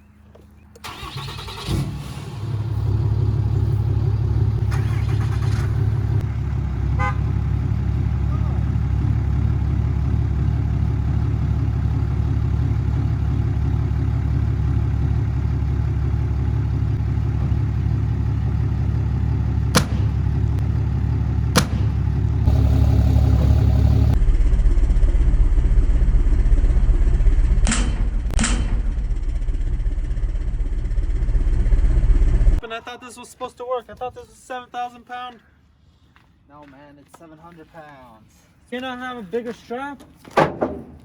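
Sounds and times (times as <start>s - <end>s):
truck engines rumbling: 0.0s - 32.7s
sharp cracks: 19.8s - 20.4s, 21.6s - 22.2s.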